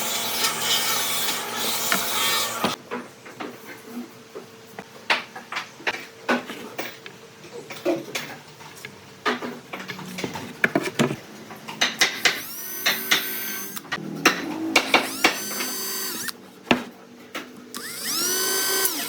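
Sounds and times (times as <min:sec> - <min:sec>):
power tool whine: 0:12.2 - 0:13.9, 0:14.7 - 0:16.4, 0:17.8 - 0:19.0.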